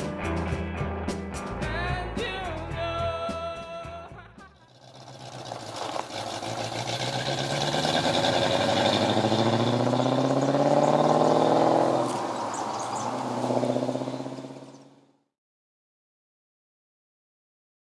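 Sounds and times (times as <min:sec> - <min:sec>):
car engine accelerating: 0:04.7 - 0:15.0.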